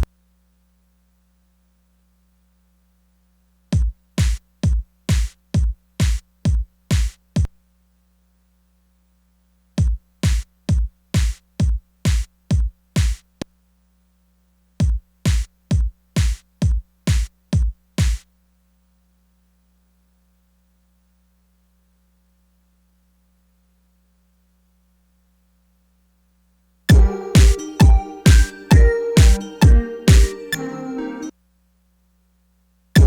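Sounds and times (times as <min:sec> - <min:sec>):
kick drum hits: 0:03.8 - 0:07.1, 0:09.8 - 0:13.2, 0:14.8 - 0:18.2, 0:26.9 - 0:30.3.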